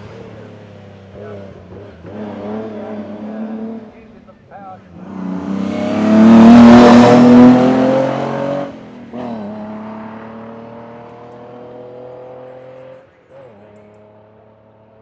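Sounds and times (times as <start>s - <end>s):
distant car engine accelerating: 0.0s - 15.0s
race car passing at full throttle: 0.0s - 15.0s.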